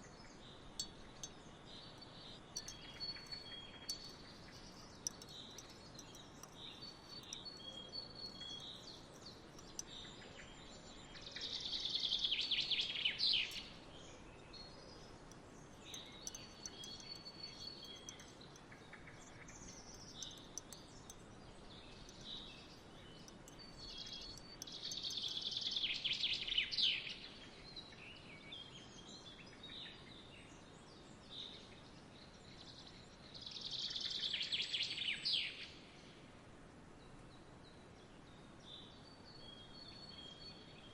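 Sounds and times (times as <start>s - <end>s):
bird singing loud song: 0.0s - 36.2s, 37.3s - 40.9s
birds chirping and whistling: 15.8s - 21.2s.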